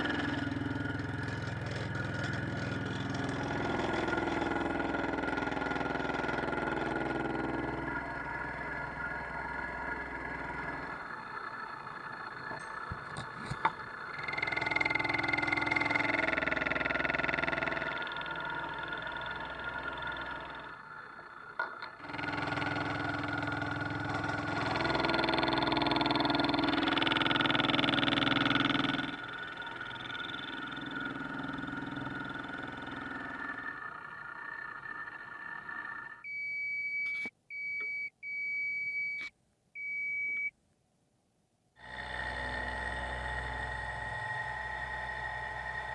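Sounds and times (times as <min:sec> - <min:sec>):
metal cutting: 0:00.0 - 0:08.3, 0:10.8 - 0:36.1
machine tool running: 0:00.0 - 0:36.2, 0:41.8 - 0:45.9.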